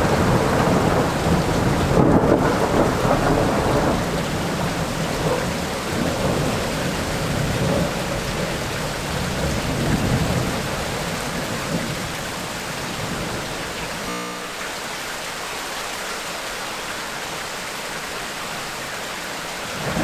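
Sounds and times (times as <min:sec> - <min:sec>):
low rolling thunder: 0:00.0 - 0:13.9, 0:19.6 - 0:20.0
heavy rain: 0:00.0 - 0:20.0.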